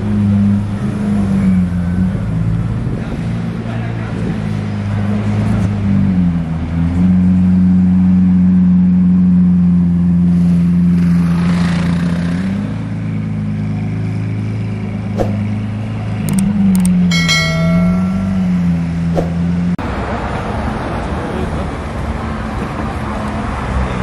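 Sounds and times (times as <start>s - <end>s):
short bell-like ring: 16.9s - 19.5s.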